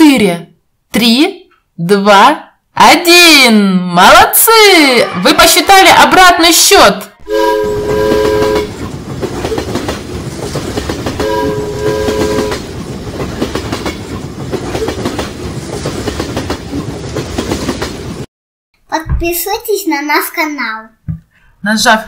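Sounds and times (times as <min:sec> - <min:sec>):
train horn blasts: 0:07.2 - 0:08.8, 0:11.1 - 0:12.6
wheels clattering on rails: 0:08.0 - 0:18.3.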